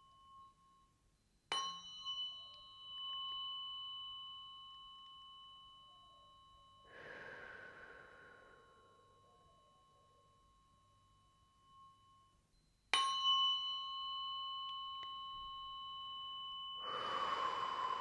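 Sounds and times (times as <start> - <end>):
tuning fork ringing: 0.0 - 18.0
soft breathy exhale: 6.9 - 9.4, 16.8 - 18.0.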